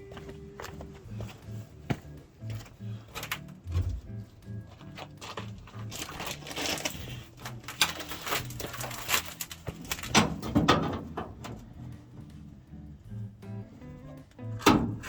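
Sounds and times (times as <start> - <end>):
faint background music: 0.0 - 15.0
tools clattering and knocking: 4.7 - 11.8.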